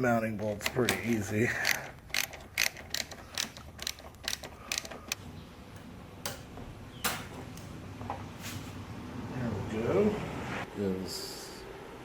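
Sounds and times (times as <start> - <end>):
ratchet wrench clicking: 0.6 - 5.2.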